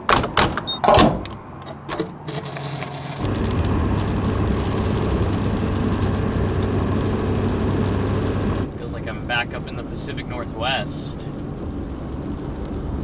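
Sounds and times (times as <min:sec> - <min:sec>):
clicks and knocks: 0:00.0 - 0:03.4
road noise: 0:00.0 - 0:08.7
low engine drone: 0:02.4 - 0:08.7.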